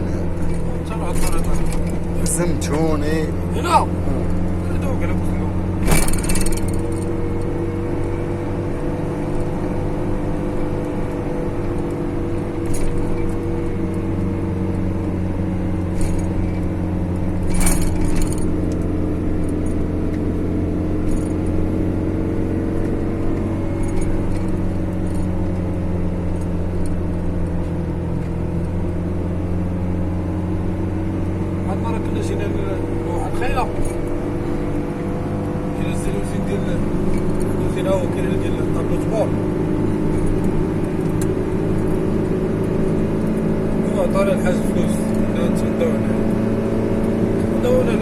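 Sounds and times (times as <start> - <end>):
vehicle engine droning: 0.0 - 48.0
clicks and rattles: 17.4 - 18.8.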